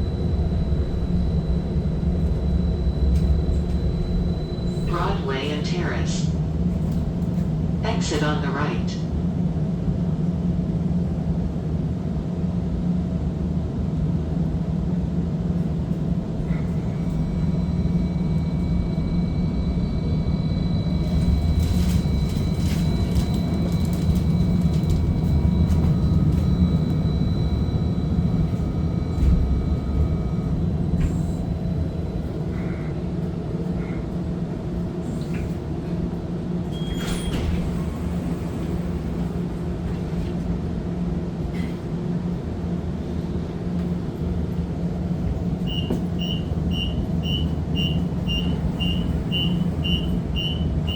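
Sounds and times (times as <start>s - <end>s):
streetcar hum: 0.0s - 50.9s
high-pitched whining tones: 45.6s - 50.9s.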